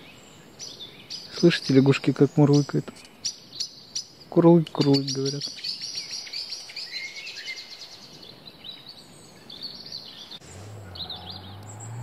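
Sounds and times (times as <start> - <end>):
birds chirping: 0.0 - 12.0
car engine revving: 10.4 - 12.0.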